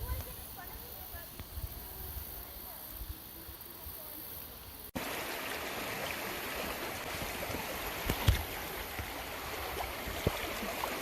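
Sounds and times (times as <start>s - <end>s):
river water rushing through rapids: 5.0s - 11.0s.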